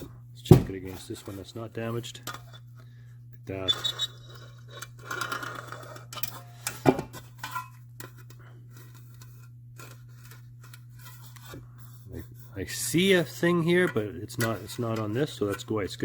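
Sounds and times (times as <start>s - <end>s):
low shop hum: 0.0s - 16.0s
metal trim rustling and scraping: 12.8s - 15.9s.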